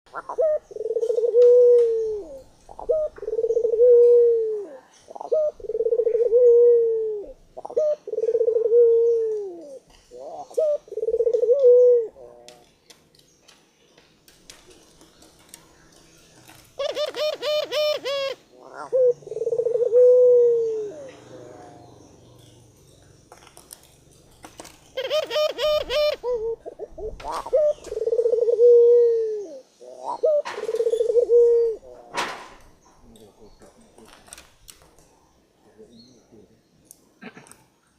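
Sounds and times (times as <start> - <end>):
dove cooing: 0.1 - 12.6, 16.7 - 22.6, 24.5 - 32.6.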